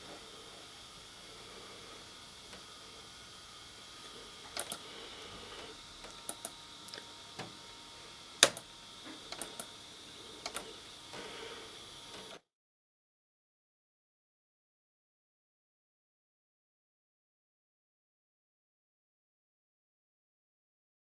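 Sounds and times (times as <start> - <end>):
faint steady hum: 0.0 - 12.4.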